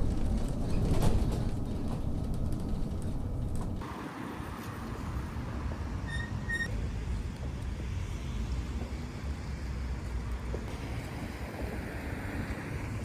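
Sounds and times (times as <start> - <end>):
low outdoor rumble: 0.0 - 3.8
short high squeak: 6.1 - 6.7.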